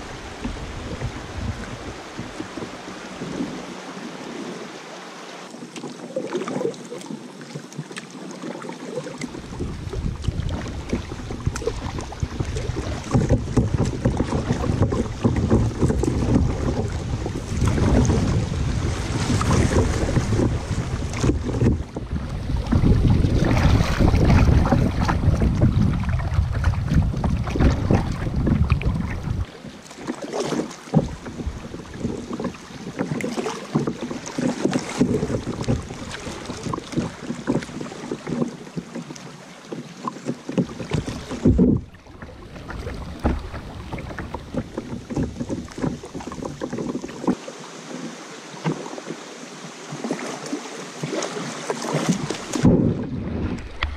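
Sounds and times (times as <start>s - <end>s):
wind buffeting microphone: 0.0s - 3.7s, 9.4s - 29.5s, 52.0s - 53.9s
kayak paddles in water: 0.0s - 53.9s.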